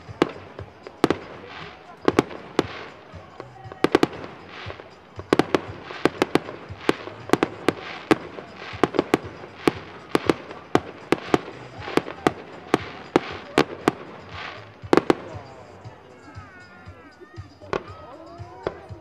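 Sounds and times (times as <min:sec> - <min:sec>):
fireworks bangs: 0:00.0 - 0:16.0
fireworks hissing: 0:00.0 - 0:16.4.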